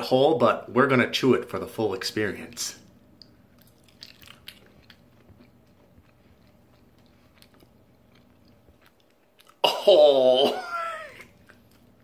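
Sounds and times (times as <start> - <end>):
faint chewing with mouth clicks: 2.4 - 9.6, 11.2 - 12.0.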